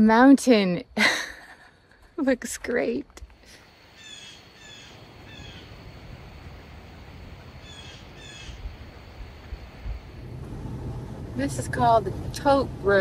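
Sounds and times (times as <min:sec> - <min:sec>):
bird calling: 0:03.9 - 0:05.9, 0:06.9 - 0:09.9
low steady rumble: 0:04.8 - 0:13.0.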